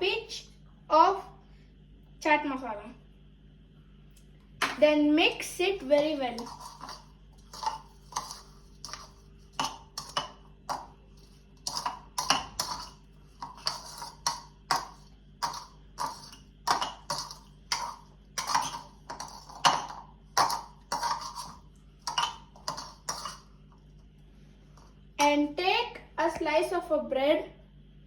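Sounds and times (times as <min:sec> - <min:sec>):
spoon scraping a mixing bowl: 0:05.8 - 0:24.0.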